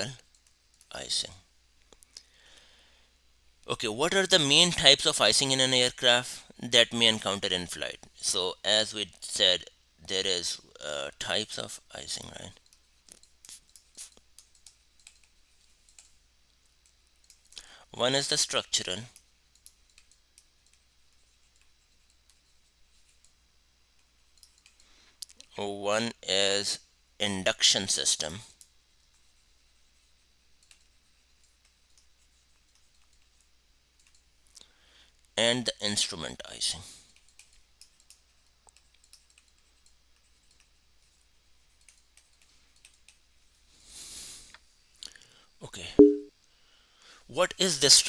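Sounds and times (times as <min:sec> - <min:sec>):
faint irregular clicks: 0:00.2 - 0:00.9, 0:01.8 - 0:02.7, 0:12.6 - 0:17.7, 0:19.1 - 0:25.5, 0:28.6 - 0:35.4, 0:37.1 - 0:43.7
low steady hum: 0:45.8 - 0:46.3.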